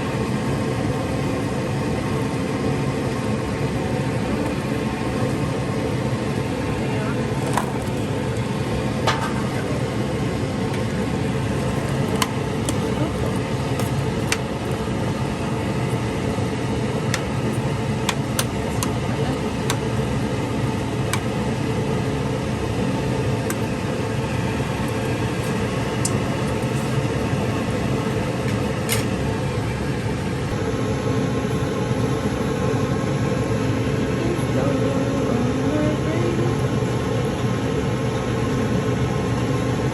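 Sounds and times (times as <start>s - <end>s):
mechanical hum: 0.0s - 39.9s.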